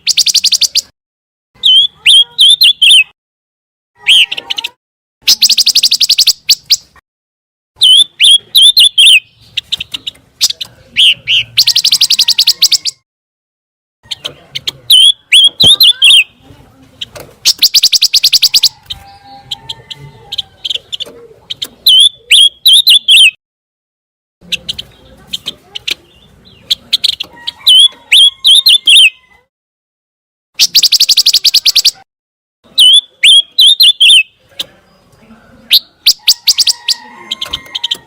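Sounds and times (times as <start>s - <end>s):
bird whistled chirps: 0.0s - 0.9s, 1.6s - 3.1s, 7.8s - 9.3s, 21.9s - 23.4s, 27.0s - 29.2s, 30.6s - 32.0s, 32.8s - 34.3s
songbird trilling: 0.0s - 0.9s, 1.6s - 3.1s, 5.3s - 6.9s, 7.8s - 13.0s, 14.1s - 16.4s, 17.4s - 23.4s, 25.6s - 29.3s, 32.8s - 34.3s, 35.7s - 38.0s.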